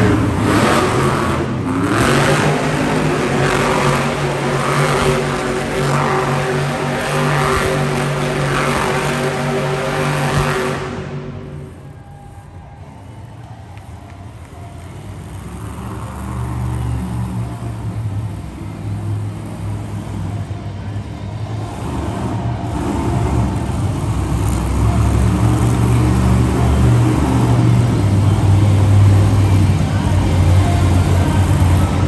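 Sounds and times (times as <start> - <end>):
monster truck engine throbbing: 0.0 - 32.0.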